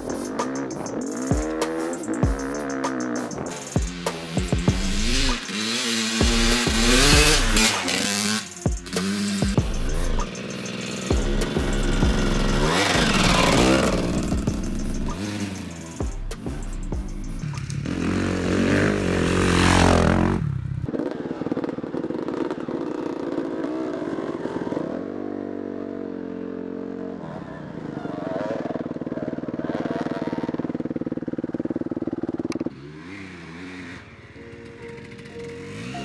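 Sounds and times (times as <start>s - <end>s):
dirt bike engine revving: 0.0s - 20.9s, 29.9s - 36.0s.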